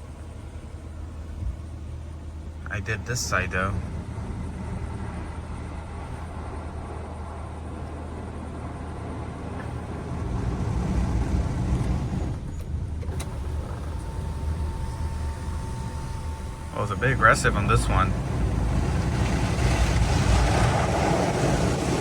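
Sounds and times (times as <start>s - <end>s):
car wash rumble and hiss: 0.0s - 22.0s.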